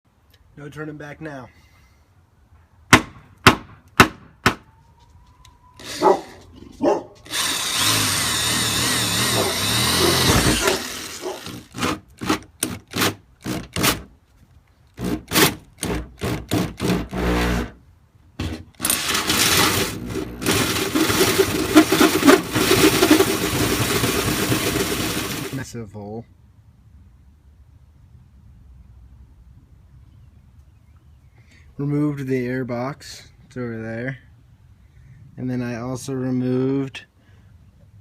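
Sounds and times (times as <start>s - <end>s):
power tool cutting sheet metal: 7.3s - 14.0s, 15.0s - 17.8s, 18.8s - 25.6s.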